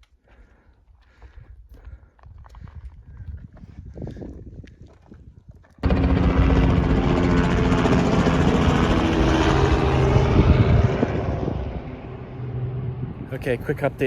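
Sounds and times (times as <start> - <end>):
aircraft engine droning: 5.8 - 14.0.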